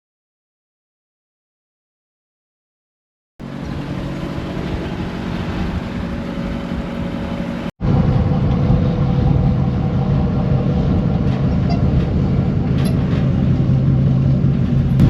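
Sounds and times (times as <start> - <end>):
skid steer engine running: 3.4 - 15.0.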